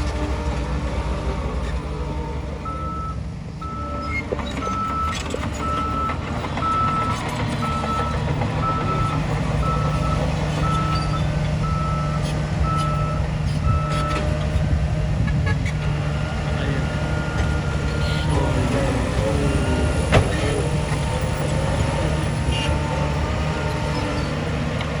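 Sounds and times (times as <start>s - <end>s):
diesel engine rumble: 0.0s - 25.0s
reversing alarm beeping: 2.6s - 14.4s, 16.6s - 20.0s.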